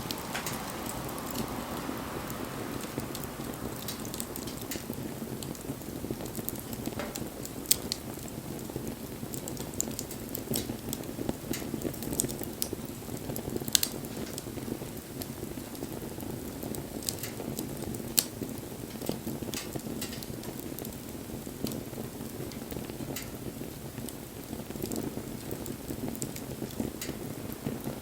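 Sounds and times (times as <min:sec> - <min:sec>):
fire crackles and pops: 0:00.0 - 0:28.0
rush of bonfire flame: 0:00.0 - 0:28.0.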